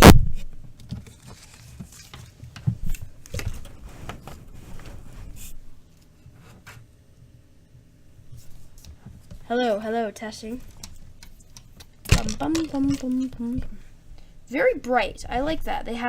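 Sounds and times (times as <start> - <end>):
cable and plug clicks and rustles: 10.6 - 13.7.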